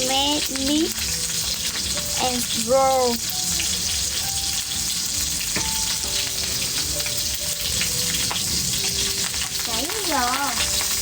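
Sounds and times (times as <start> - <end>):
meat rolls sizzling: 0.0 - 11.0.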